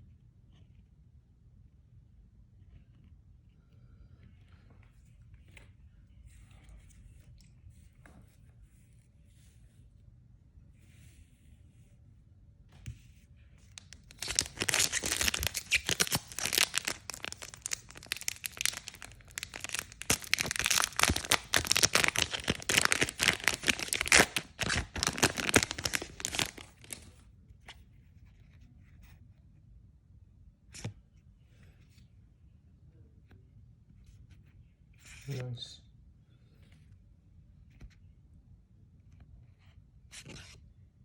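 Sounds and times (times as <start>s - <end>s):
wrapper tearing and crinkling: 13.8s - 27.1s.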